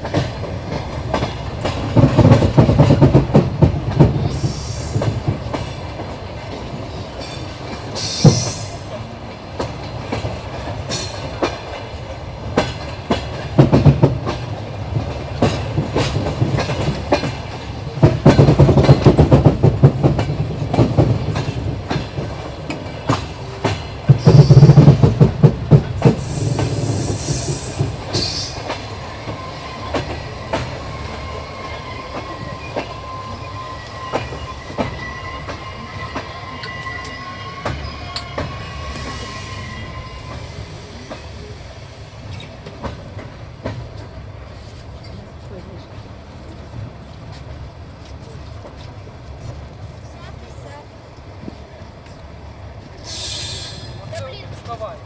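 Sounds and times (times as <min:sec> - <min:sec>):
train wheels clattering: 0:00.0 - 0:55.0
hissing squeals: 0:24.2 - 0:24.9, 0:26.2 - 0:41.5, 0:53.1 - 0:54.1.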